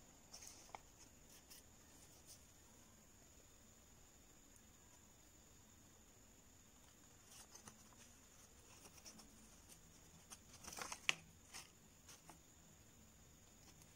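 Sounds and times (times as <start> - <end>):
paper crinkling: 0.3 - 2.4, 6.9 - 12.4
sharp paper crackle: 7.2 - 12.4.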